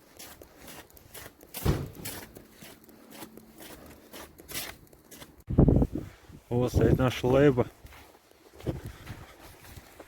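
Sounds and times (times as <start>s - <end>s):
footsteps walking: 0.0s - 10.0s
loud thump: 1.6s - 2.1s.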